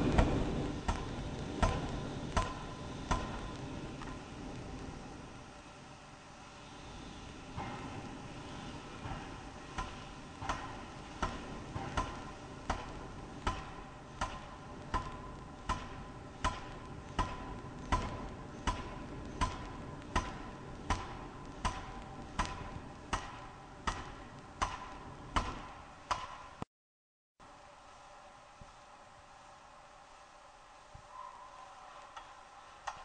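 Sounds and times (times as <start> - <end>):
forging hammer blows: 0.0 - 4.3, 6.5 - 26.6
low machine noise: 0.0 - 26.6, 27.4 - 33.0.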